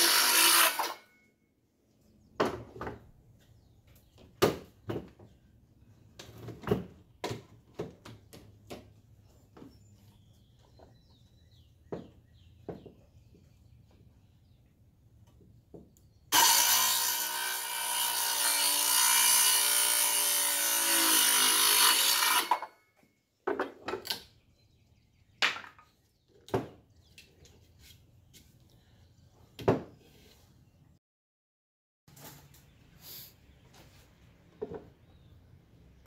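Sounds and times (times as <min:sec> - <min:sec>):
circular saw cutting wood: 0:00.0 - 0:01.1, 0:16.3 - 0:22.7.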